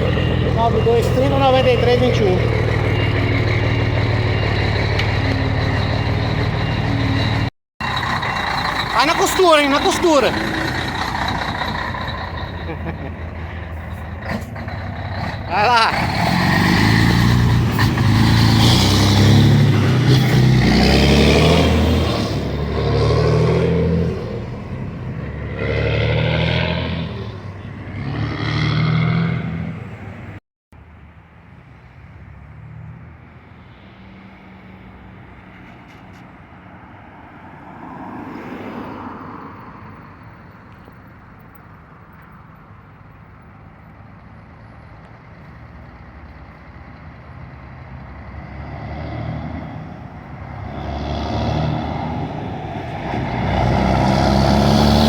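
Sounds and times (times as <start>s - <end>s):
loud diesel truck engine revving: 0.0s - 29.9s, 48.0s - 55.0s.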